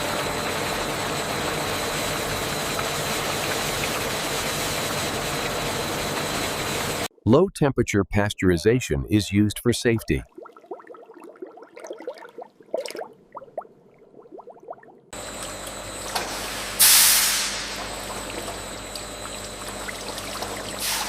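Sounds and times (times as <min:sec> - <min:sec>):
processing machinery noise: 0:00.0 - 0:07.1, 0:15.2 - 0:21.0
loud hiss: 0:16.4 - 0:17.8.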